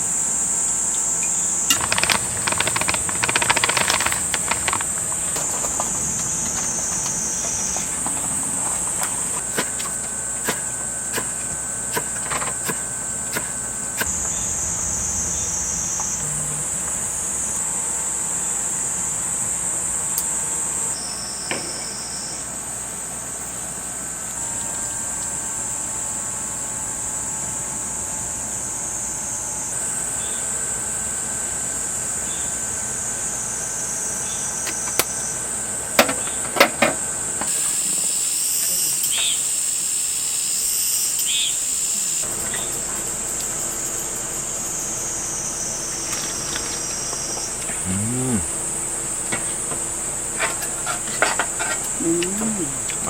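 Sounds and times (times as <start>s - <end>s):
insects chirring: 0.0s - 53.0s
sharp clicks: 1.7s - 7.1s.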